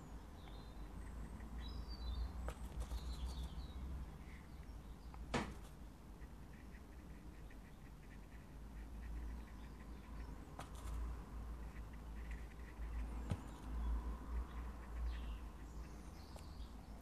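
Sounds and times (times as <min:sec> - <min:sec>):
faint bird chirps: 0:06.2 - 0:11.0, 0:11.6 - 0:17.0.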